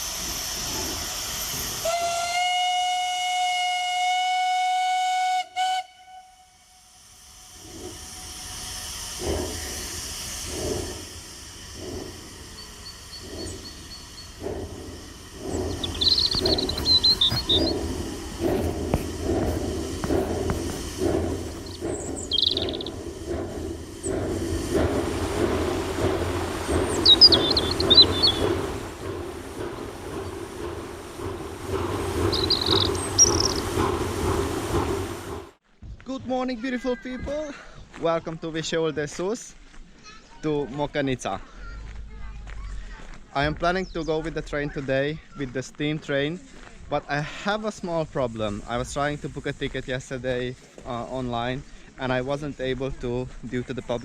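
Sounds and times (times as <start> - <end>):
steam hissing: 0.0 - 35.6, 47.1 - 54.0
steam locomotive chuffing: 0.0 - 35.6, 40.8 - 54.0
steam locomotive whistle: 1.8 - 6.8.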